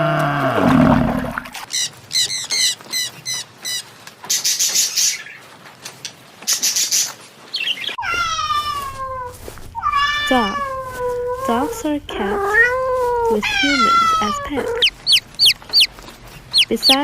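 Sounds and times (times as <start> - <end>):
small animal chirps: 12.4 - 17.0
deep drawn-out animal call: 12.7 - 16.8.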